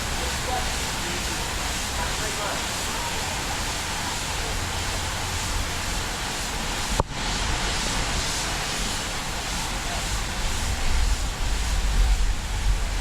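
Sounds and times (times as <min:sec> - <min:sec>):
wind rushing over microphone: 0:05.0 - 0:13.0.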